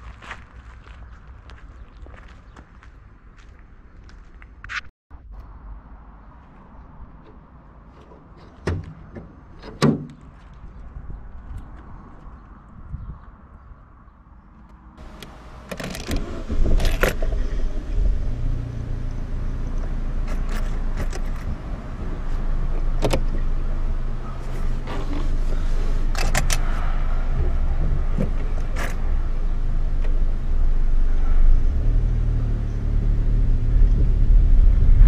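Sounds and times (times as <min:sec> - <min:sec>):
car engine idling: 0:15.0 - 0:34.5.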